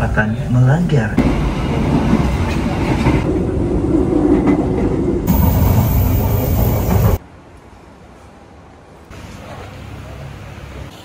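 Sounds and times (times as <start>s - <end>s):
train wheels rumbling and rattling: 1.2s - 7.9s.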